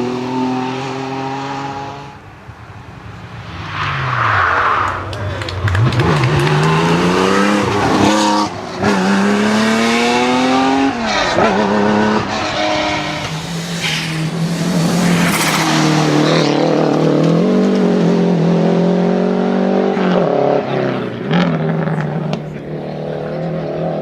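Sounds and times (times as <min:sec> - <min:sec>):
rally car engine revving: 0:03.6 - 0:24.0.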